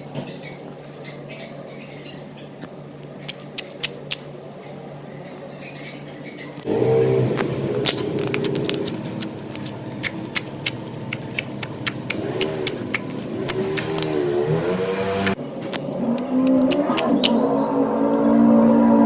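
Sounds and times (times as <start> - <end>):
slime clicking and popping: 7.8 - 14.2, 16.5 - 17.4.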